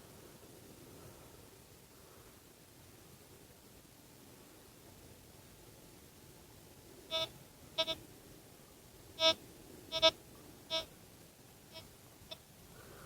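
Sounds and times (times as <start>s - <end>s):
metal detector beeps: 7.1s - 8.0s, 9.2s - 10.1s.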